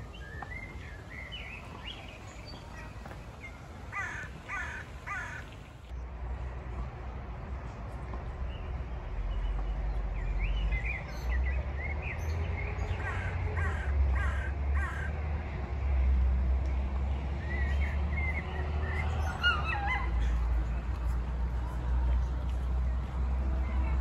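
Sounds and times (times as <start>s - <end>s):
birds calling: 0.0s - 5.9s.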